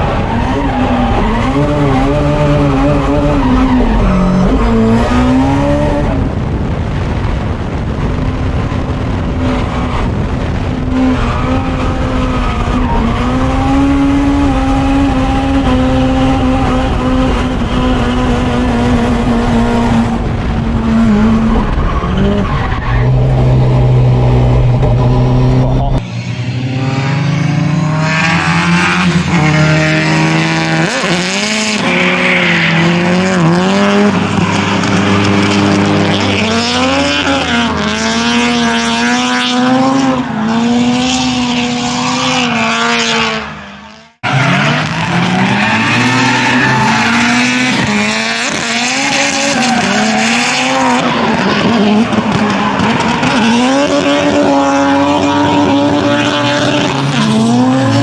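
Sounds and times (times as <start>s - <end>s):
tyre squeal and skidding: 0.0s - 5.7s, 25.0s - 35.8s, 36.4s - 58.0s
car engine revving: 0.0s - 58.0s.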